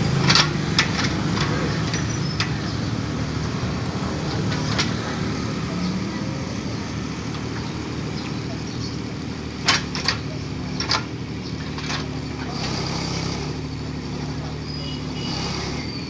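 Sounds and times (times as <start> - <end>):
diesel engine running: 0.0 - 16.0
sharp metallic clanks: 0.1 - 6.0, 6.6 - 13.7.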